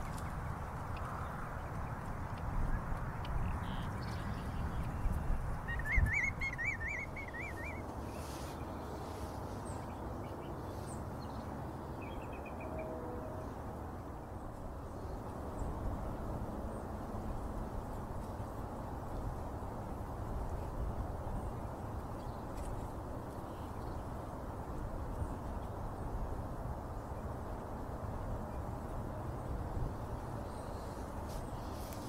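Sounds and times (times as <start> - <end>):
steady low rumble: 0.0 - 8.9.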